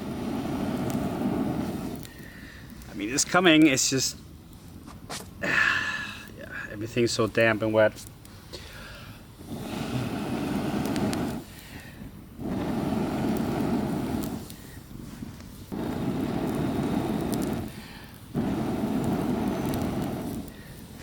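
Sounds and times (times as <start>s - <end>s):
person blowing into a campfire: 0.0s - 2.8s, 8.5s - 21.0s
person inhaling: 2.1s - 2.8s, 5.4s - 6.3s, 8.4s - 10.2s, 11.4s - 12.1s, 17.7s - 18.2s, 20.4s - 20.9s.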